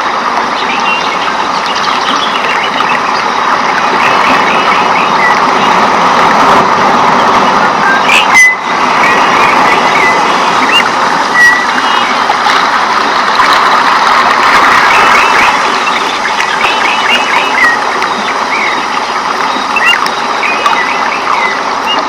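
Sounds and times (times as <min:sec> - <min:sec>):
bird chirps: 0:07.9 - 0:12.2, 0:14.9 - 0:22.0.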